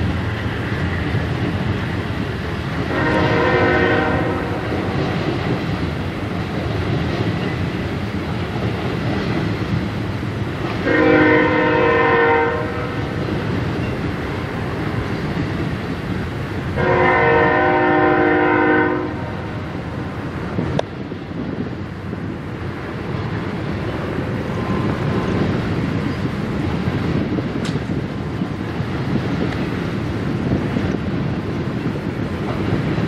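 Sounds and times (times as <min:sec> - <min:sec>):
freight train cars rumbling past: 0:00.0 - 0:33.0
locomotive air horn blasts: 0:02.8 - 0:05.2, 0:10.8 - 0:13.2, 0:16.8 - 0:20.0.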